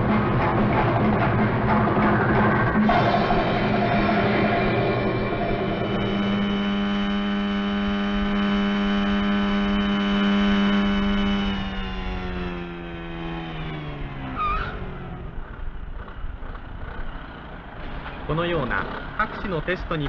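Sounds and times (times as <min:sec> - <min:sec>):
motorcycle engine revving: 0:00.0 - 0:20.0
short squeal: 0:14.3 - 0:14.9.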